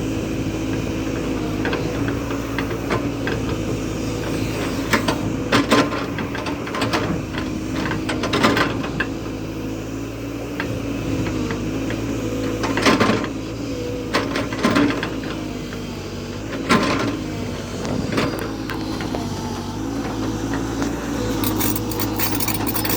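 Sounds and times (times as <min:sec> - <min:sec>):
machine rattling: 0:21.3 - 0:22.9.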